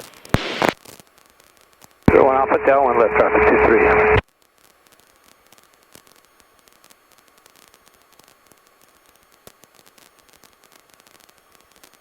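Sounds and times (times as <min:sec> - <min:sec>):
small crackles: 0:00.0 - 0:12.0
headset radio static hiss: 0:00.4 - 0:00.8, 0:02.1 - 0:04.2
faint steady tone: 0:02.1 - 0:04.2.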